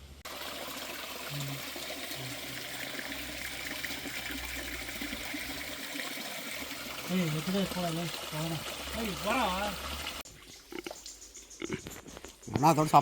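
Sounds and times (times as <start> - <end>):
river water trickling over stones: 0.2 - 11.3.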